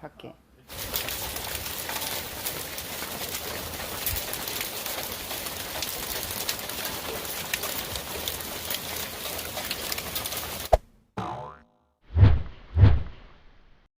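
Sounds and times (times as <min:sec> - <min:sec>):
hailstones ticking on hard surfaces: 0:00.7 - 0:10.7
heavy rain with hail: 0:00.7 - 0:10.7.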